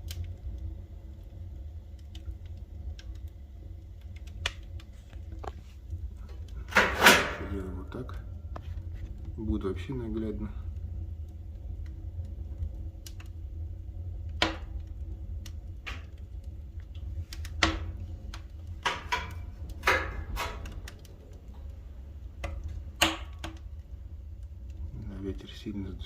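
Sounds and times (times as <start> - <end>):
firewood crackling and popping: 0.0 - 26.0
low fire rumble: 0.0 - 26.0.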